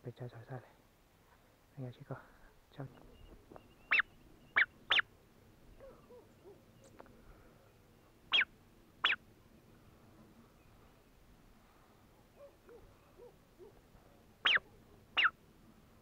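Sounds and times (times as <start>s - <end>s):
sharp high bird calls: 3.0s - 5.1s, 8.3s - 9.2s, 14.4s - 15.4s.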